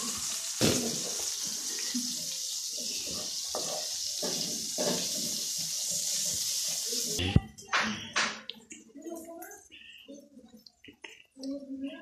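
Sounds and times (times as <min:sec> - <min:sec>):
chicken sizzling in oil: 0:00.0 - 0:07.2
metal spatula scraping pan: 0:01.0 - 0:07.2.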